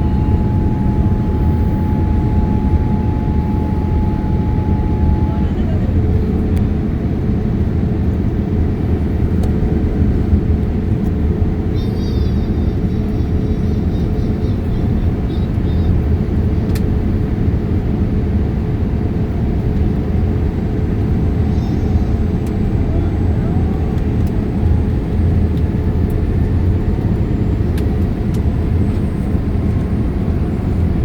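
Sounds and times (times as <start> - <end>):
steady cabin hum: 0.0 - 10.0, 20.6 - 31.0
airliner cabin engine rumble: 0.0 - 31.0.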